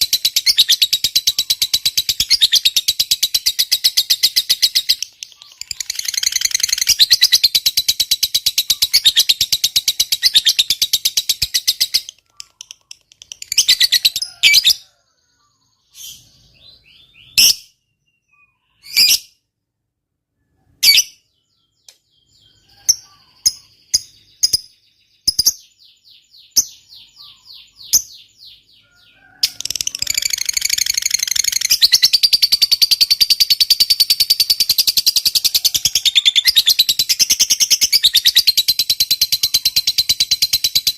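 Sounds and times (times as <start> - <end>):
lovebird chattering trill: 0.0 - 14.8, 22.7 - 25.8, 29.3 - 40.9
bird chirps: 0.0 - 19.5, 20.3 - 40.9.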